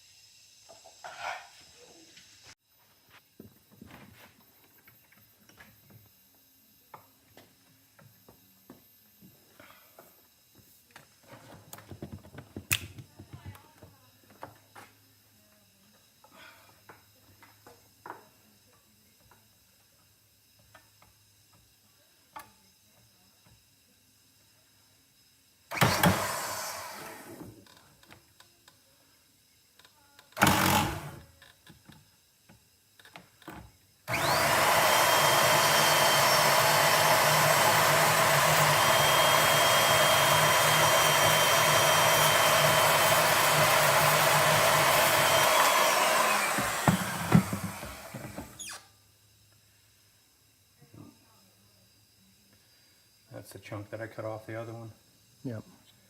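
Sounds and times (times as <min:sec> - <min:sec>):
power cutting tool whining: 0:25.7 - 0:27.5, 0:30.4 - 0:31.2, 0:34.1 - 0:48.9.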